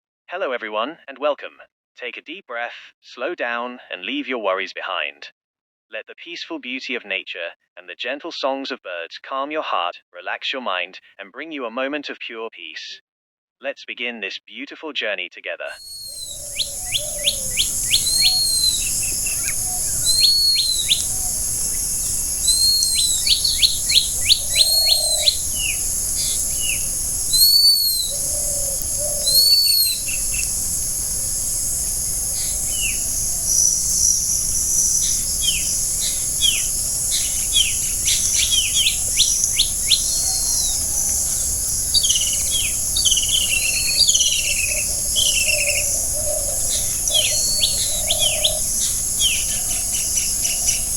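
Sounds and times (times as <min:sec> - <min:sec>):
birds chirping and singing: 0:15.8 - 0:50.9
lower bird calls: 0:15.8 - 0:50.9
steady high-pitched hiss: 0:15.8 - 0:50.9.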